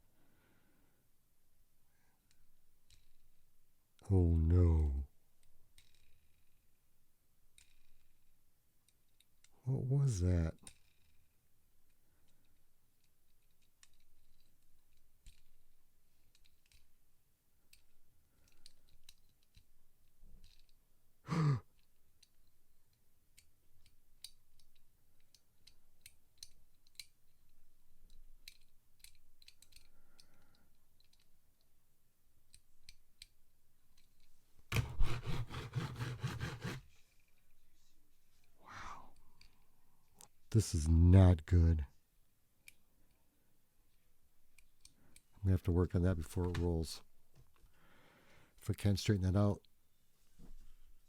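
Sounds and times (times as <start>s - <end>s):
person sighing: 21.3s - 21.7s, 38.6s - 39.2s
toy truck clicks and taps: 23.4s - 27.2s, 28.1s - 31.3s.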